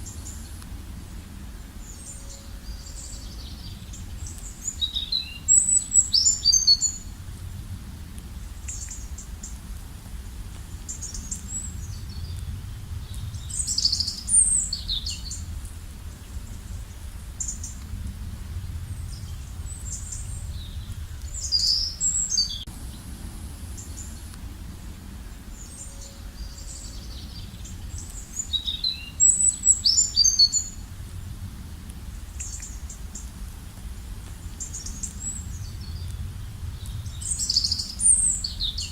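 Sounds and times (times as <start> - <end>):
faint bird chirps: 1.6 - 7.1, 19.0 - 23.0, 25.2 - 30.8
songbird singing high phrases: 1.7 - 7.1, 10.9 - 15.5, 19.0 - 23.0, 25.5 - 30.8, 34.6 - 38.9
low rumble: 6.9 - 29.8, 30.5 - 38.9.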